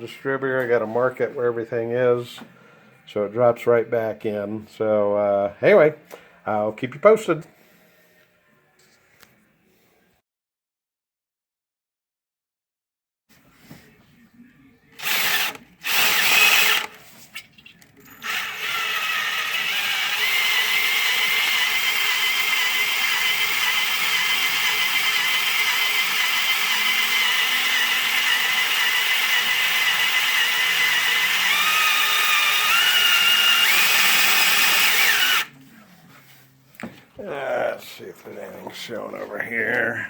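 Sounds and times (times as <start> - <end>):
electric drill spinning: 15.0 - 17.0, 18.2 - 35.5.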